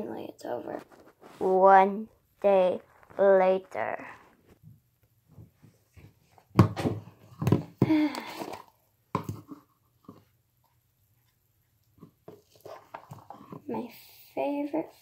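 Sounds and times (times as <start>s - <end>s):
rustling: 0.6s - 1.7s, 2.3s - 4.7s.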